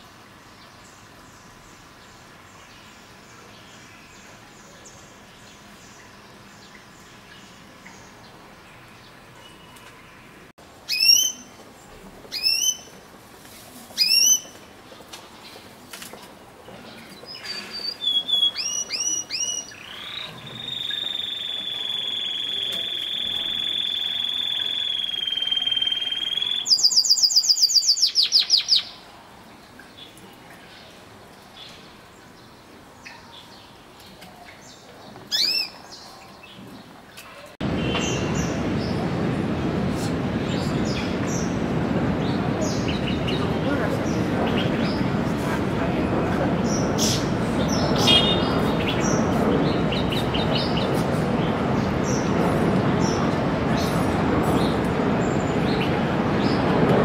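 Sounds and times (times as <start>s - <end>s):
bird whistled call: 10.9s - 11.5s, 14.0s - 14.5s, 17.5s - 28.9s.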